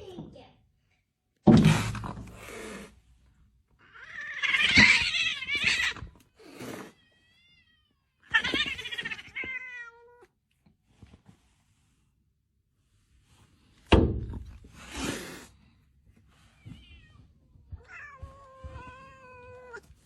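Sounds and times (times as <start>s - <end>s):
cat meowing: 3.8s - 10.3s, 16.6s - 20.0s.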